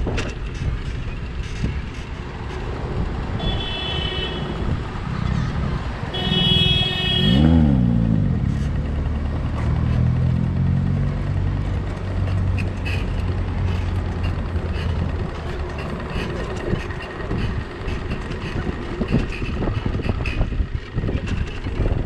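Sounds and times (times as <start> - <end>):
road and wind noise: 0.0 - 22.0
vehicle engine running: 4.5 - 22.0.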